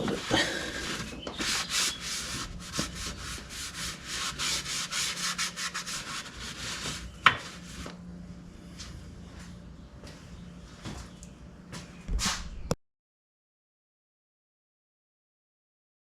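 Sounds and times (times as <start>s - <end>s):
cloth scrubbing a surface: 0.0s - 8.0s.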